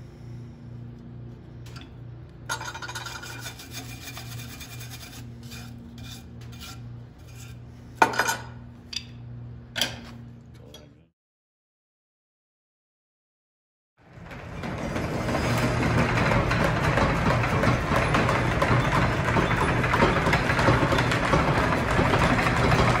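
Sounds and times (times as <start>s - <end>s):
steady low hum: 0.0s - 11.1s
scraping on metal: 2.5s - 8.4s.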